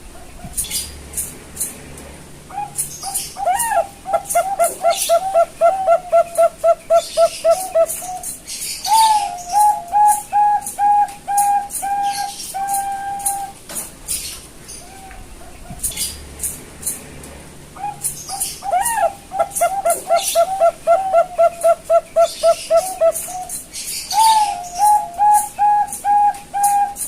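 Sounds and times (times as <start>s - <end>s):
dove cooing: 2.5s - 13.6s, 17.8s - 27.0s.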